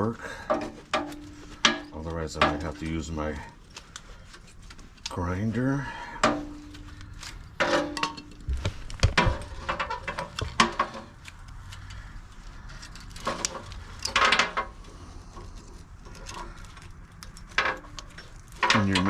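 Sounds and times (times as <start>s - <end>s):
wire cutters clicking on steel cable: 16.0s - 19.0s.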